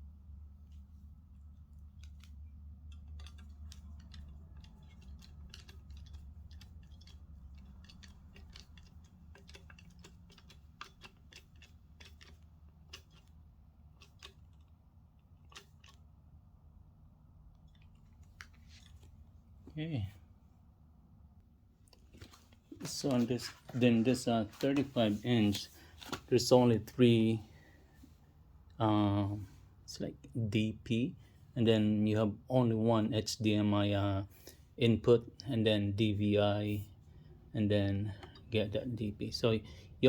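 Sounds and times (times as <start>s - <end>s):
low steady hum: 0.0s - 40.0s
faint clicks and taps of parts: 1.7s - 14.8s, 38.1s - 38.6s.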